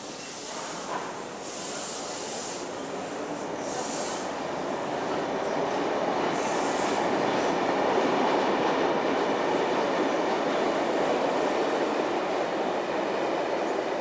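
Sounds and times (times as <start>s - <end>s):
electric train running on rails: 0.0s - 14.0s.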